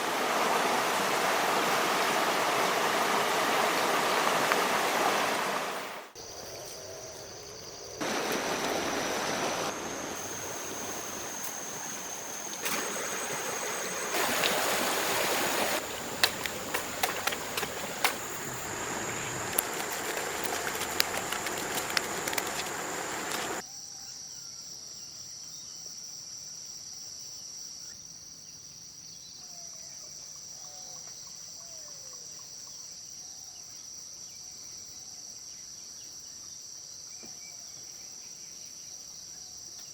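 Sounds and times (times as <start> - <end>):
stream water flowing: 0.0 - 6.2, 8.0 - 23.6
insect trill: 6.1 - 26.1
sharp clicks: 15.8 - 18.7, 19.5 - 23.6.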